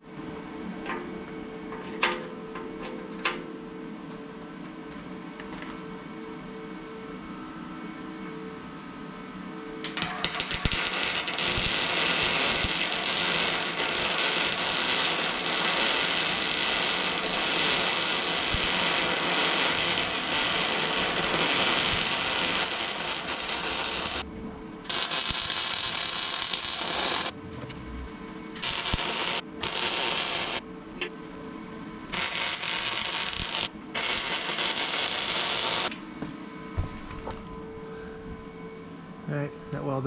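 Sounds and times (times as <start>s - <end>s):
electric arc welder crackling: 9.8s - 24.2s, 24.8s - 27.4s, 28.6s - 30.6s, 32.1s - 35.9s.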